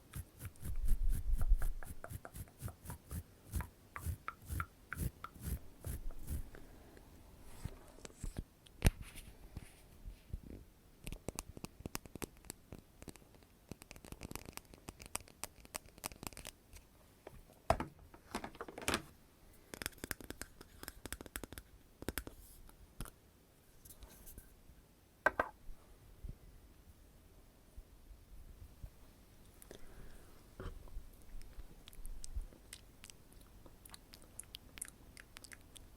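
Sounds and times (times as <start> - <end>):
small clicks taps and crackles: 11.0 - 16.9, 19.7 - 22.4.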